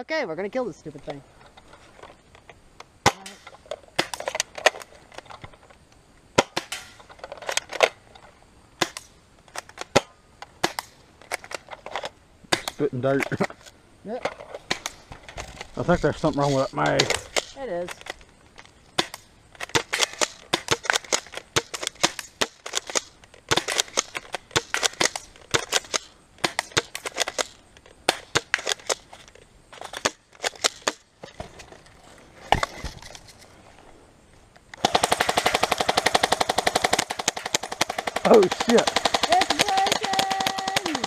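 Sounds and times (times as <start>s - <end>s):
airsoft gun shots: 6.4s - 7.0s, 9.9s - 11.0s, 34.8s - 41.0s
full-auto airsoft burst: 34.8s - 41.0s.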